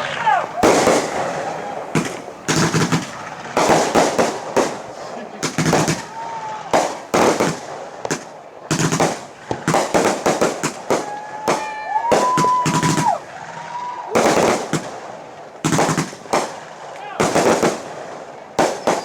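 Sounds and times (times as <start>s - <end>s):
fireworks cracking bangs: 0.0s - 19.0s
whistle-like tone: 18.8s - 19.0s.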